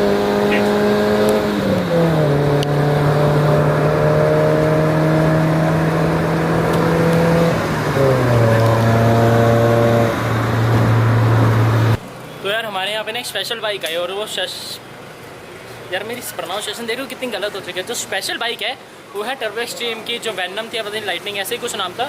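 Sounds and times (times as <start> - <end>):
car engine and exhaust from inside: 0.0 - 12.0.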